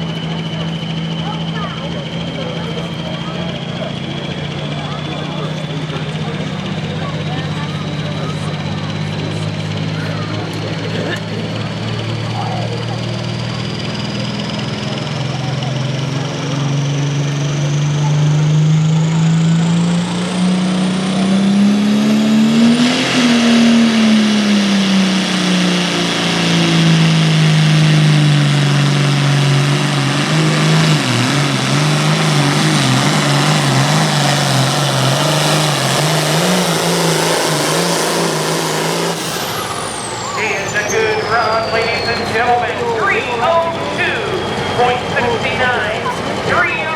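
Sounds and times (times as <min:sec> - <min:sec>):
pulling tractor diesel engine: 0:00.0 - 0:46.9
turbo whistle: 0:37.4 - 0:45.9.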